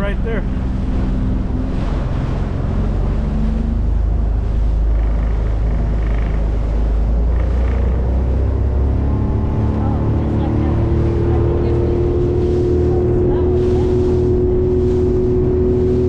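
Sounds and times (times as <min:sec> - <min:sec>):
speedboat engine rumbling: 0:00.0 - 0:16.0
wind and water rushing: 0:00.0 - 0:16.0.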